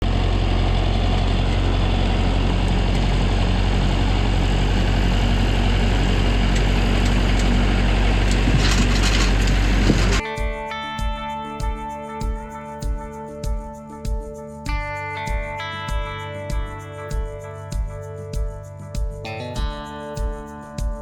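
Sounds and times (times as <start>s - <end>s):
large engine idling: 0.0s - 10.2s
guitar music: 10.1s - 21.0s.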